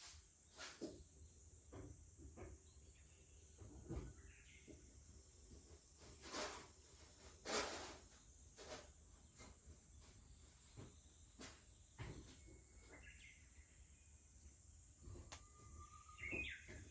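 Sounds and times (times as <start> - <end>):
cicadas droning: 0.0 - 16.9
wood fire hissing: 5.1 - 9.1.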